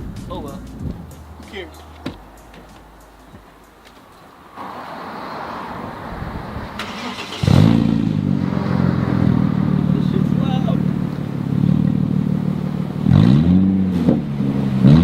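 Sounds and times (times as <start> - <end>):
car engine running loud: 4.6 - 15.0.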